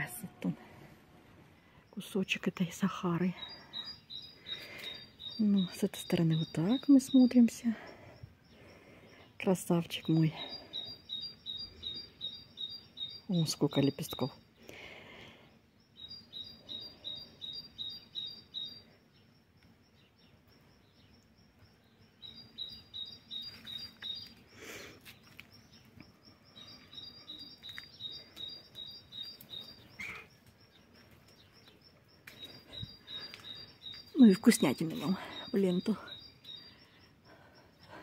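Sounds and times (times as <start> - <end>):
songbird chirping: 0.0 - 38.0.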